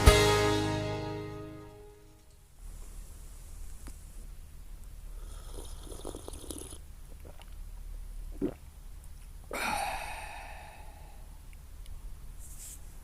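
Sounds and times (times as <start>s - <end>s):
steady low hum: 6.8s - 12.4s.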